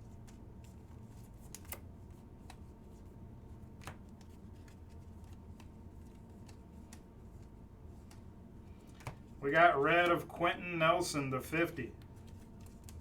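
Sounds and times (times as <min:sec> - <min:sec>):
cards sliding and clicking: 0:01.1 - 0:03.0, 0:03.7 - 0:10.2, 0:12.0 - 0:13.0.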